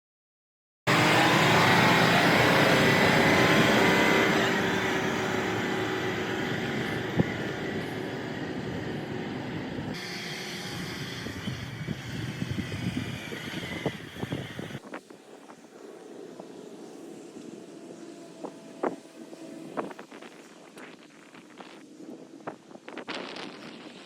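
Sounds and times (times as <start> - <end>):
truck engine running loudly: 0.9 - 14.8.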